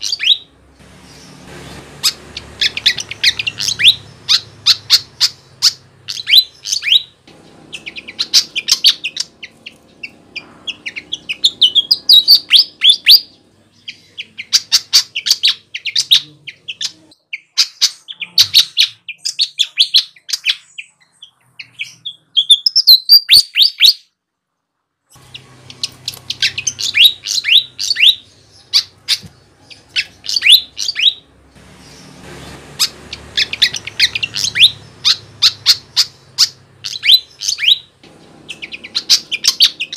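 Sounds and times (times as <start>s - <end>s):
flycatcher song: 0.0s - 17.1s, 25.2s - 39.9s.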